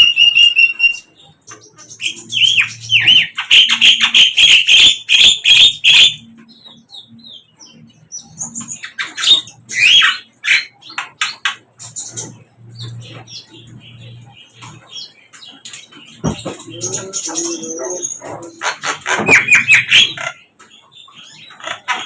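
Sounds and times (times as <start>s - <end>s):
small bird singing chirps and whistles: 0.0s - 1.2s.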